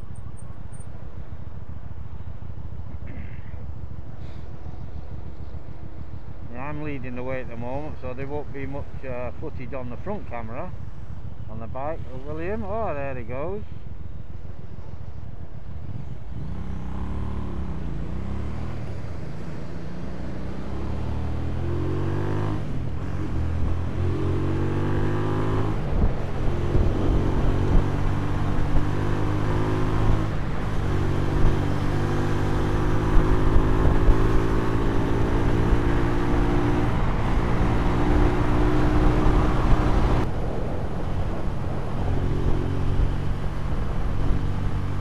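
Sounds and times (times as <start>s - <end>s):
motorcycle engine accelerating: 16.2s - 45.0s.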